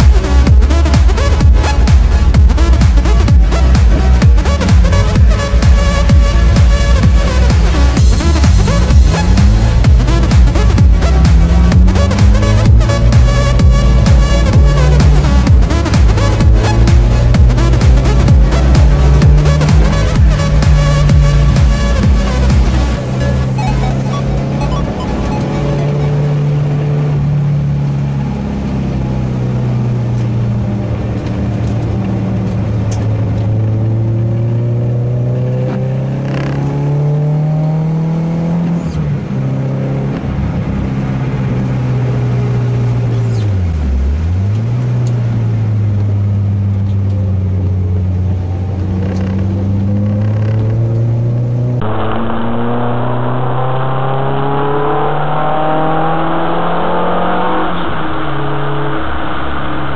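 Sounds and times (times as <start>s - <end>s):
car engine revving under load: 0.0s - 59.9s.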